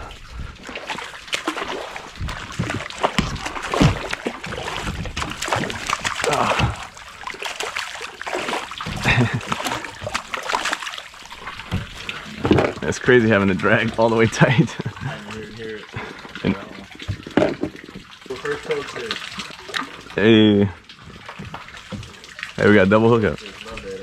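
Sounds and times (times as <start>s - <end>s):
water splashing and sloshing: 0.0s - 24.0s
knocks on kayak: 2.5s - 5.8s.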